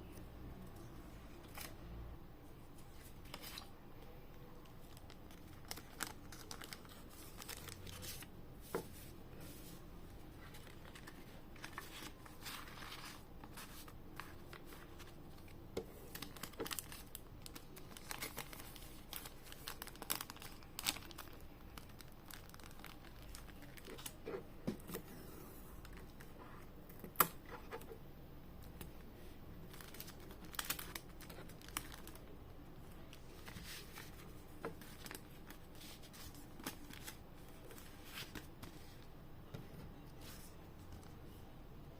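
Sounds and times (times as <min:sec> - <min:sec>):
packaging crinkling and tearing: 0:04.7 - 0:08.3, 0:10.4 - 0:24.2, 0:29.6 - 0:32.3.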